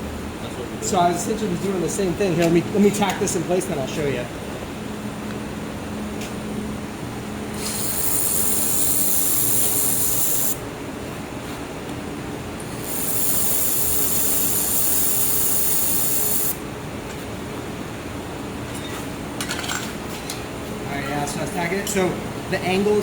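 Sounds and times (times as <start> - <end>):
machine humming: 0.0 - 11.2, 12.3 - 16.9
laser welder hissing: 7.5 - 10.6, 12.6 - 16.6.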